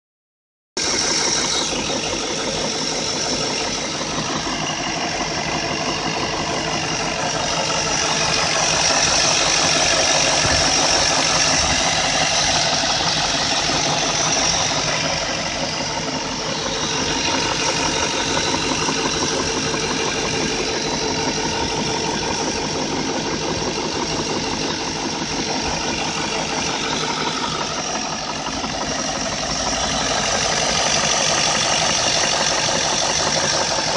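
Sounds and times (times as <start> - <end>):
engine running with knocking: 0.8 - 33.9.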